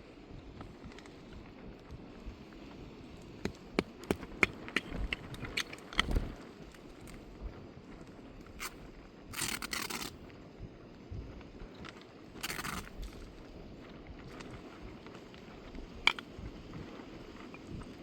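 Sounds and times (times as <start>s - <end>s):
objects clicking and knocking: 3.4s - 7.2s, 12.4s - 13.2s, 16.0s - 16.3s.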